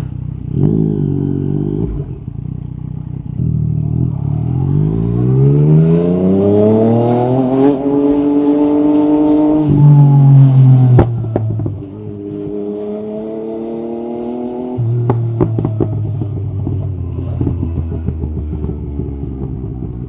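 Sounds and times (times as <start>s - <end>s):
motorcycle engine accelerating: 0.0s - 20.0s
exhaust pops and crackles: 14.9s - 20.0s.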